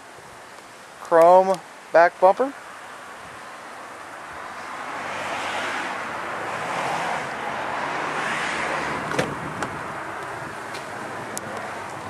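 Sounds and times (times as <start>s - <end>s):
outdoor rushing noise: 2.7s - 12.0s.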